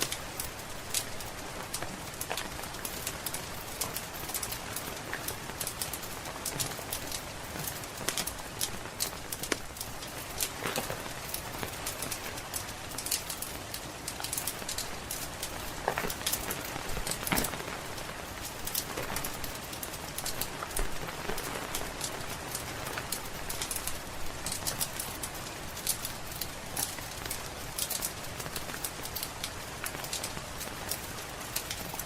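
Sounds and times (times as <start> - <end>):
rain falling: 0.0 - 32.0
wood fire crackling: 0.0 - 32.0.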